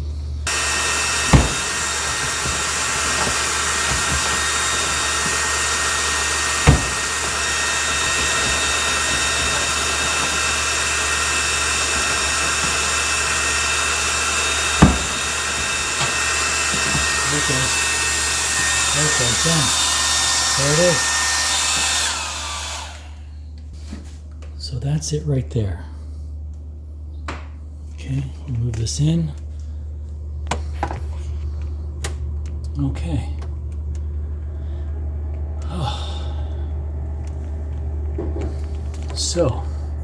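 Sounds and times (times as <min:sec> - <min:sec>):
hair dryer blowing: 0:00.4 - 0:23.4, 0:33.4 - 0:40.0
sharp knocks: 0:00.5 - 0:17.2.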